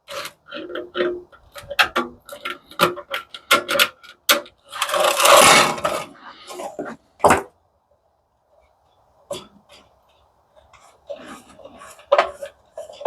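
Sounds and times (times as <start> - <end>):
metal scraping rasp: 0.0 - 7.0, 10.8 - 13.0.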